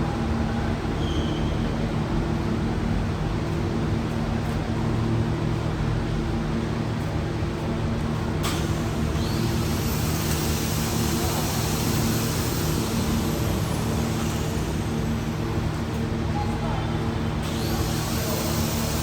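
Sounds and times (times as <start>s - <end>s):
loud continuous hiss: 8.6s - 16.2s
motor hum: 8.6s - 16.2s, 17.4s - 19.0s.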